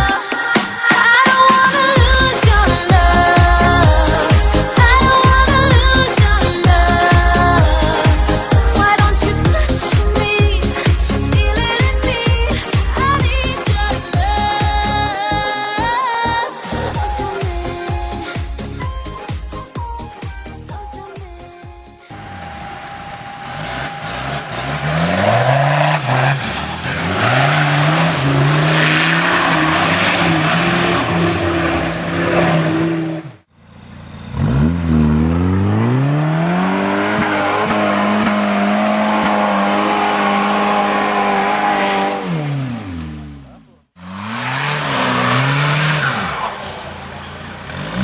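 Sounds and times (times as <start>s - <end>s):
vehicle engine revving hard: 22.1s - 48.0s.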